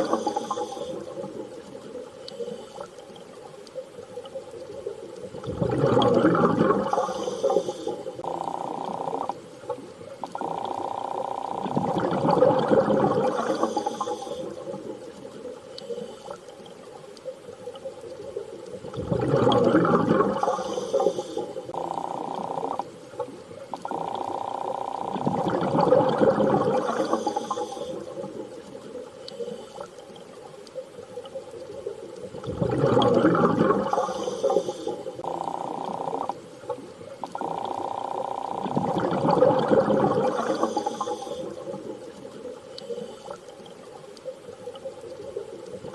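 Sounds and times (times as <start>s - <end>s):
underwater water surging: 0.0s - 45.9s.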